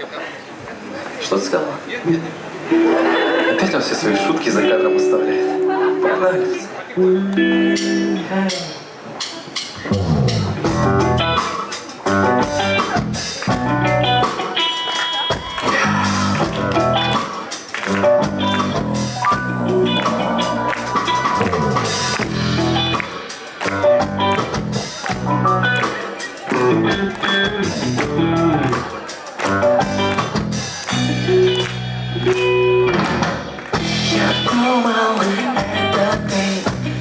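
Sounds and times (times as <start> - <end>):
guitar: 2.1 - 37.0
drum kit: 7.7 - 37.0.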